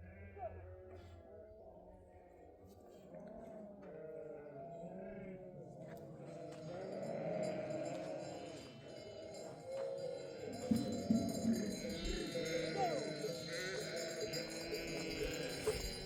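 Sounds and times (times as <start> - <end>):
sheep bleating: 3.8 - 9.6, 10.5 - 16.0.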